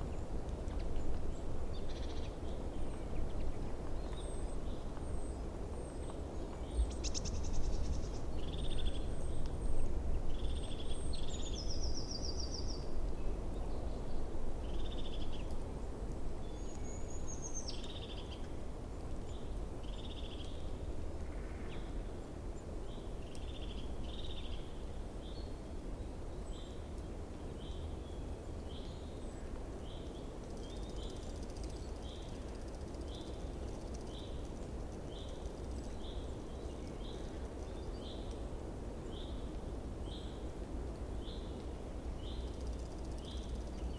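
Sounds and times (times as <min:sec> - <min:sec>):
small birds chirping: 0:00.0 - 0:15.6, 0:22.8 - 0:43.9.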